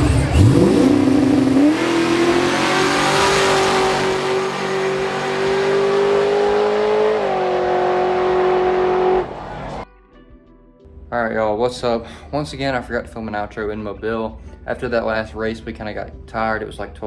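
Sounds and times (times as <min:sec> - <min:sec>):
racing car engine revving: 0:00.0 - 0:09.8.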